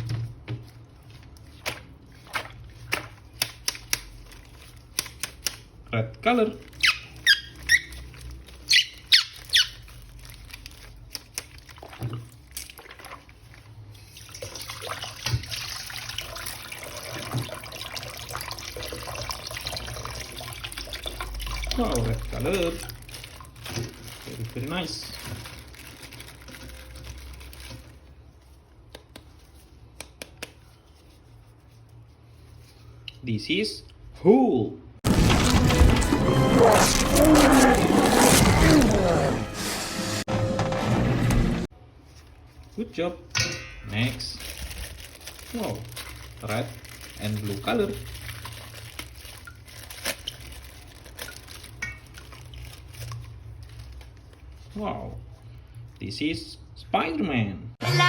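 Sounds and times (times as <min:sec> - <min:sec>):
soft rustling handling noise: 0:00.0 - 0:06.8, 0:22.5 - 0:33.1, 0:41.8 - 0:43.2, 0:43.9 - 0:56.2.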